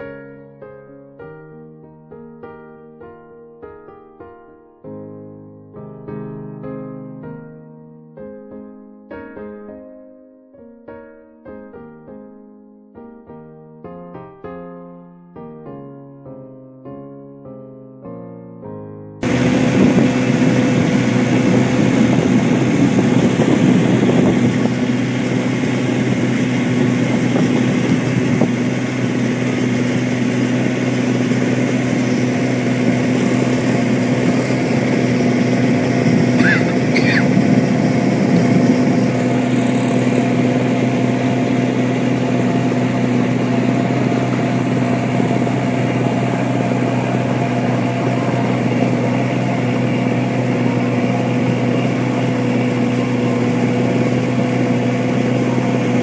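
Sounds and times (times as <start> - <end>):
small boat engine running: 19.2 - 56.0.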